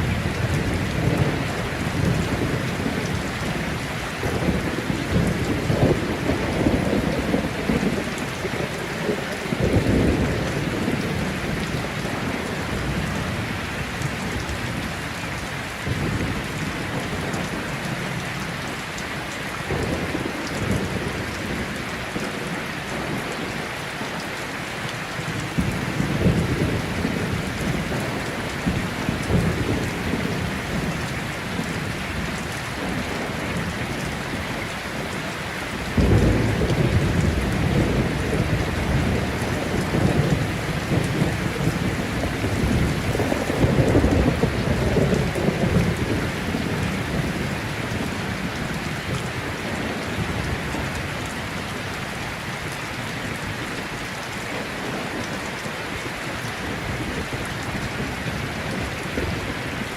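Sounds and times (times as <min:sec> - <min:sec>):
thunder rumbling: 0:00.0 - 0:18.2, 0:25.1 - 0:52.6
heavy rain falling: 0:00.0 - 0:59.9.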